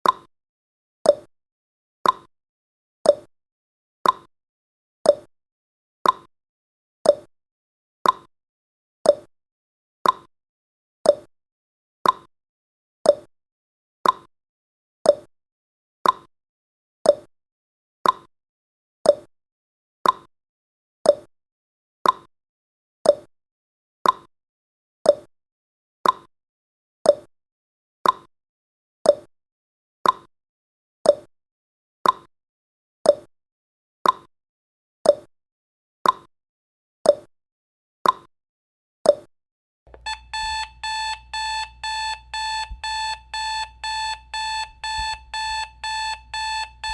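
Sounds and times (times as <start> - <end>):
timer ticking: 39.9 - 46.9.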